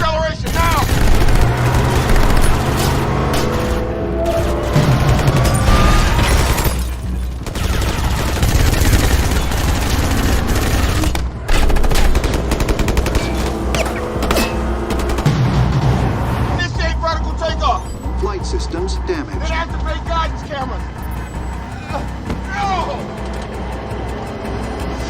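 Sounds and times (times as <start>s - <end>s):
automatic gunfire: 0.5s - 2.8s, 7.4s - 13.4s.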